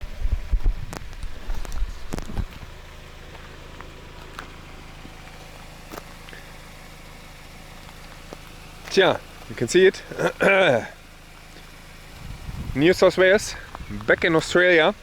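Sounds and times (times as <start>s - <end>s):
low thumps: 0.0s - 2.8s
steady low hum: 0.0s - 15.0s.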